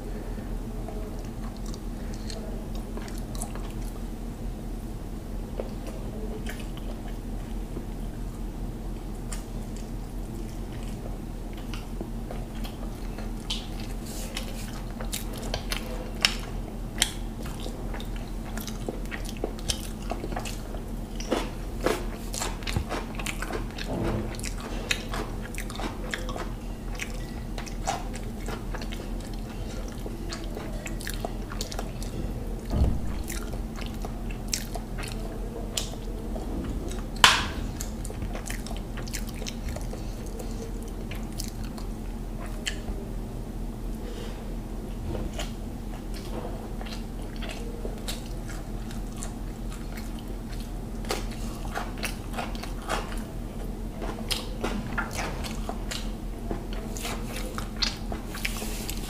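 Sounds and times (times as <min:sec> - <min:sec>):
steady low hum: 0:00.0 - 0:59.0
wet chewing smacks: 0:05.5 - 0:08.4, 0:09.0 - 0:43.0, 0:45.2 - 0:59.0.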